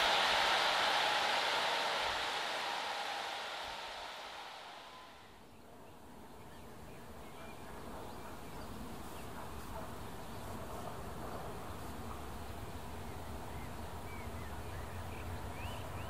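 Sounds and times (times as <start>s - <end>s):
distant train rumble: 0.0s - 5.4s.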